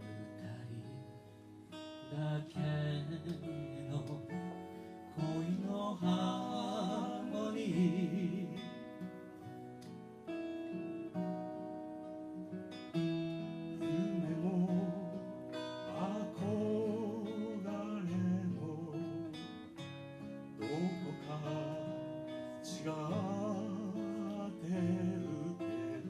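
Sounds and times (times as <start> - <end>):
acoustic guitar music: 0.0 - 26.0
person singing: 2.0 - 9.2, 13.7 - 19.8, 20.6 - 26.0.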